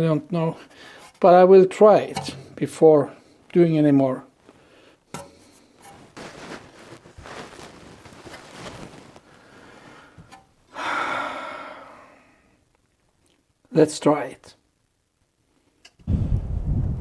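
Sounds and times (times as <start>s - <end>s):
parts rustling and scraping: 0.6s - 2.8s, 4.4s - 10.6s.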